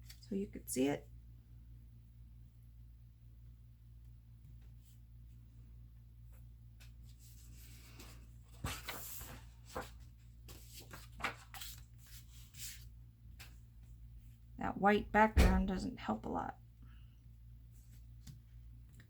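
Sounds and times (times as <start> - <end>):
paper rustling: 6.8 - 13.6.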